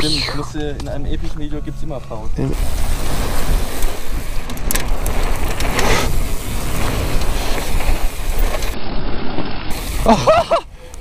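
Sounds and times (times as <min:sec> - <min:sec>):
bike tyres rumbling: 0:00.0 - 0:11.0
scraping noises: 0:02.0 - 0:09.9
wind rushing over microphone: 0:02.3 - 0:10.2
bike rattling over ground: 0:02.6 - 0:10.4.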